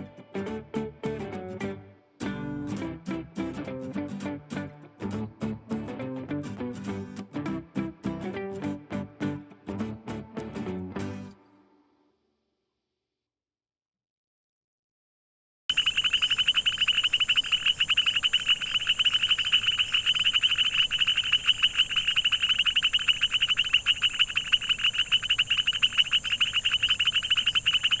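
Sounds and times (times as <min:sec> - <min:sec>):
frogs trilling in chorus: 0:15.7 - 0:28.0.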